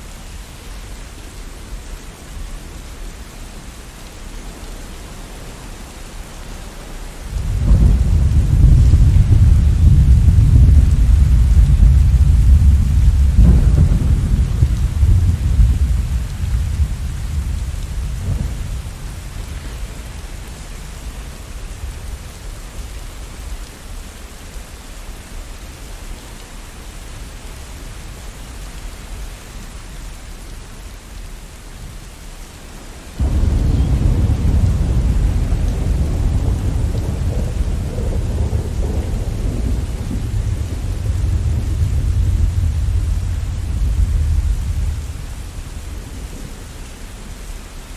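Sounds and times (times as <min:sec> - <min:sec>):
steady rain: 0:00.0 - 0:47.9
rolling thunder: 0:07.3 - 0:22.3, 0:33.2 - 0:46.7.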